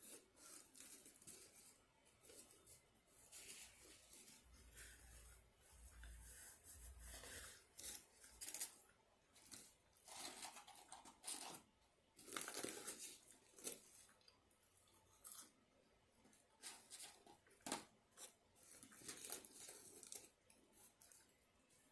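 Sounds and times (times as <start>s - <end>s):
paper packaging crinkling: 6.3s - 14.1s, 16.6s - 21.2s.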